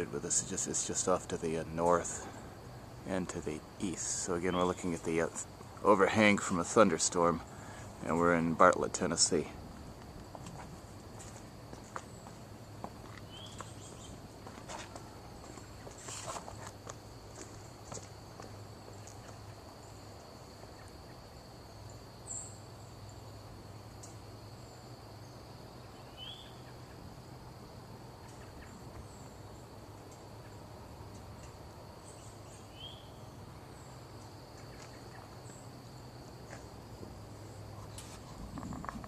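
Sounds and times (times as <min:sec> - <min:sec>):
bird chirps: 0:13.2 - 0:14.2, 0:25.8 - 0:26.9, 0:32.0 - 0:34.0.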